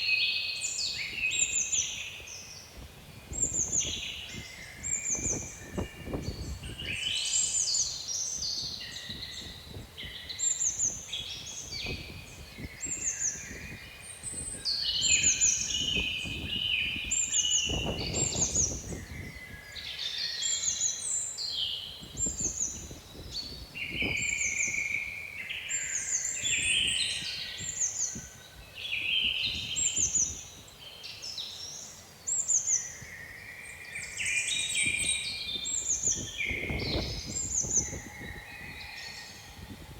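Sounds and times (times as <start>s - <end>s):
songbirds singing and chirping: 0.0s - 39.9s
wind gusts rumbling: 2.8s - 7.1s, 8.7s - 19.7s, 34.8s - 39.9s.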